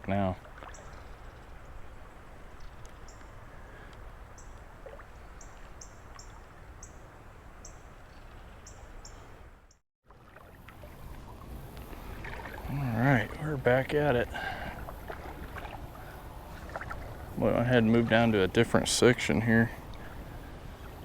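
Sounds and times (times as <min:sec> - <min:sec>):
flowing water hiss: 0:10.3 - 0:21.0.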